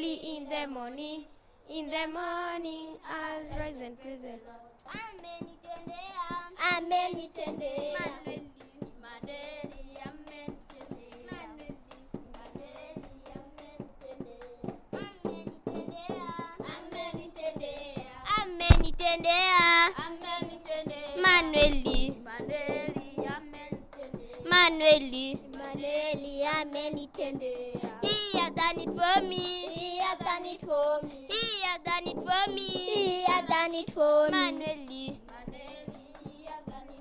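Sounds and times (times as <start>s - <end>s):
hand clapping: 4.9s - 37.0s
children singing: 16.1s - 35.2s.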